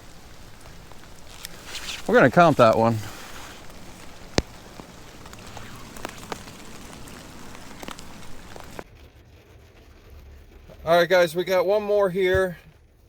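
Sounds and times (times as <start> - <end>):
rain falling: 0.0 - 8.8.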